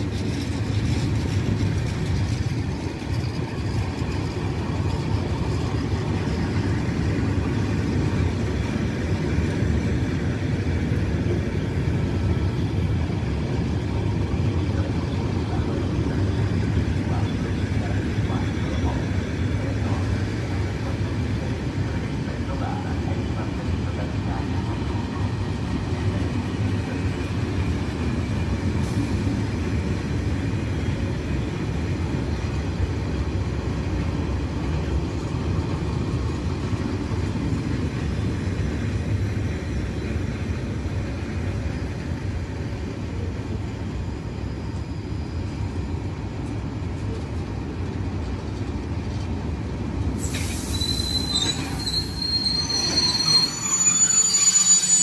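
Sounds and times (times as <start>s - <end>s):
train wheels rumbling: 0.0s - 55.0s
wheels squealing: 50.3s - 55.0s.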